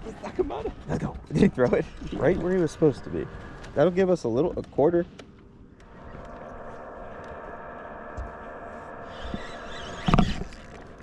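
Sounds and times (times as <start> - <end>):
small electric motor whining: 5.8 - 11.0.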